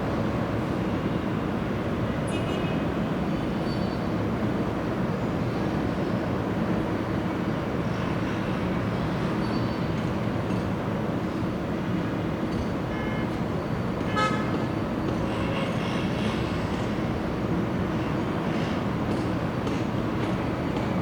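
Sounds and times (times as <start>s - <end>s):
train wheels rumbling on rails: 9.9s - 21.0s.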